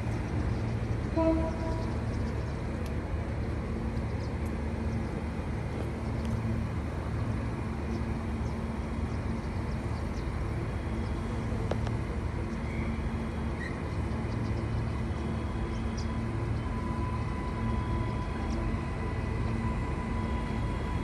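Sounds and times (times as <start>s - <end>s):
electric train humming: 0.0s - 21.0s
faint clicks: 2.8s - 3.0s, 11.6s - 12.0s.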